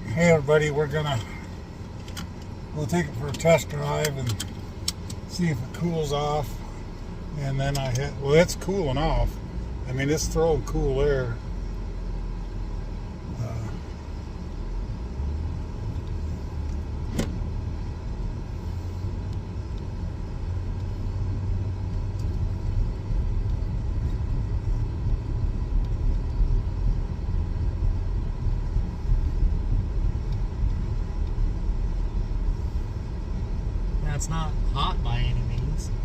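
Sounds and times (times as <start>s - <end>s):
car engine and road rumble: 0.0s - 36.0s.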